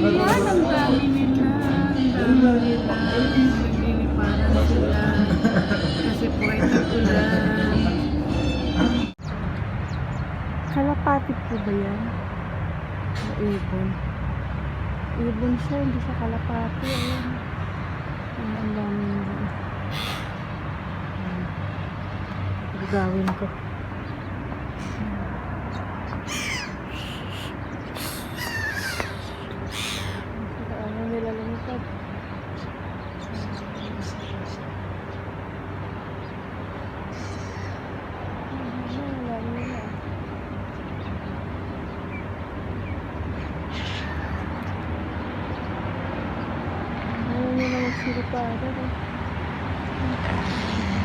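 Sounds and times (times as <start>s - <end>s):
gulls calling: 0.0s - 9.3s, 16.7s - 21.6s, 22.8s - 34.7s, 37.0s - 38.1s, 38.7s - 45.8s, 47.2s - 48.6s
low outdoor rumble: 0.0s - 51.0s.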